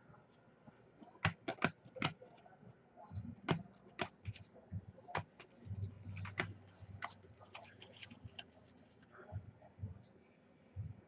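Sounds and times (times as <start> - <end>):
trading cards clicking and flicking: 1.1 - 2.3, 3.3 - 4.5, 5.1 - 8.5.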